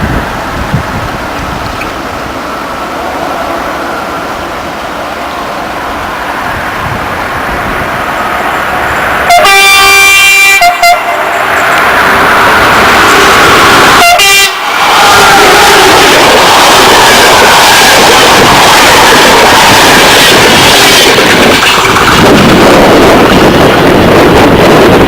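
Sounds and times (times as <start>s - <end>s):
train running noise: 0.0s - 25.0s
train horn blasts: 9.3s - 11.4s, 13.9s - 15.8s, 17.0s - 21.2s.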